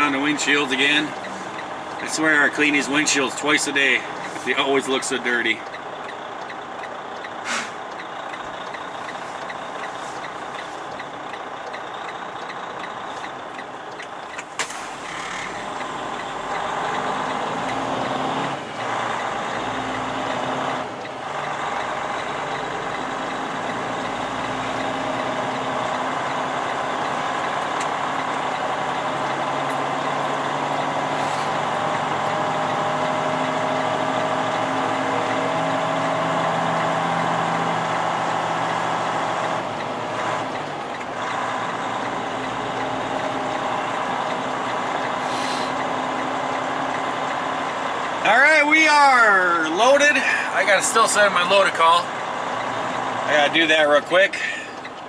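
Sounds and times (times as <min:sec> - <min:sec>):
diesel truck engine running: 0:00.0 - 0:55.0
short sharp hiss: 0:07.4 - 0:07.8.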